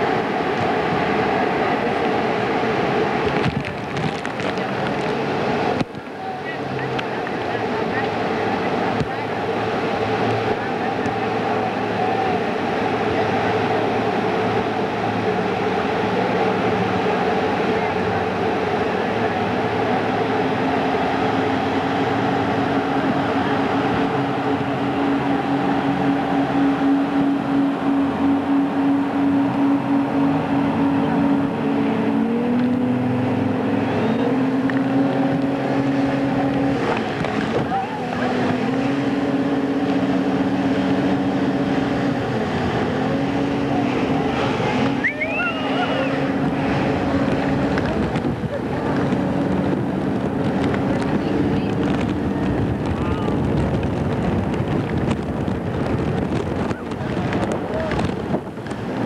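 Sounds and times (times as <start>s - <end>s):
motorboat engine drone: 0.0s - 59.0s
wind and water rushing: 0.0s - 59.0s
wind buffeting microphone: 0.0s - 59.0s
faint voice: 52.9s - 53.4s.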